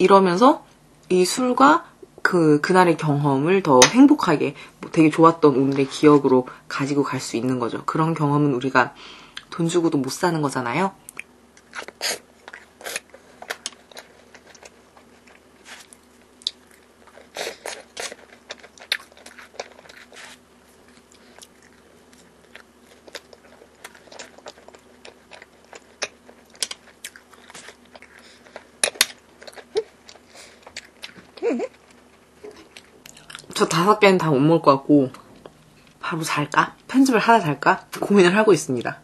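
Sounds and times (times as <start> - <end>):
faint hum: 0.0 - 39.0
chewing and biting cookie: 11.1 - 33.6.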